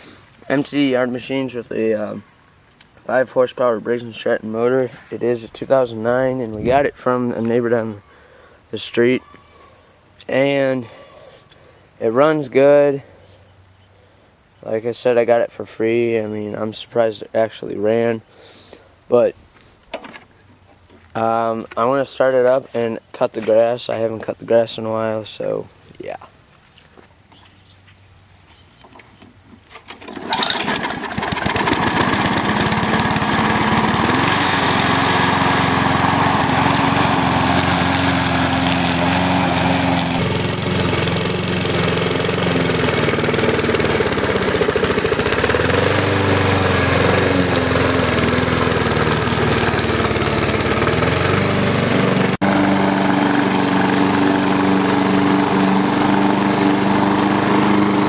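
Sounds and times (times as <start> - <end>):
lawn mower engine running: 29.6 - 58.0.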